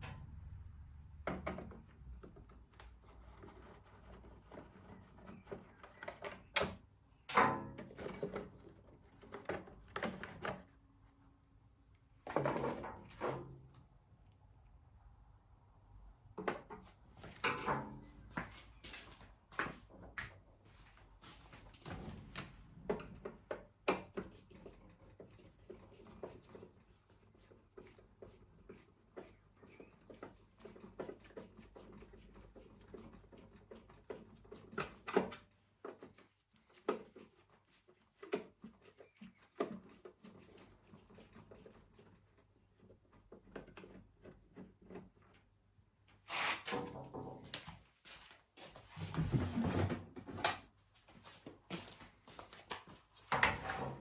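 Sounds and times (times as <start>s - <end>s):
rustling or scraping bursts: 46.2s - 46.9s
tools knocking and clattering: 46.7s - 47.7s.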